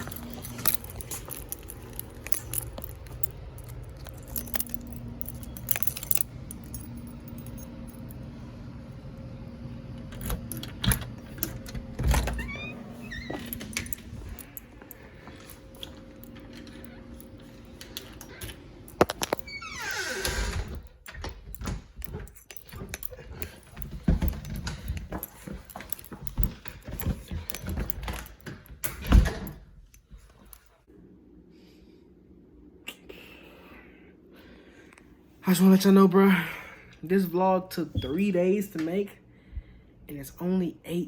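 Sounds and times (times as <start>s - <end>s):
keys jangling: 0.0s - 8.4s, 10.0s - 30.8s
low steady hum: 0.0s - 29.4s.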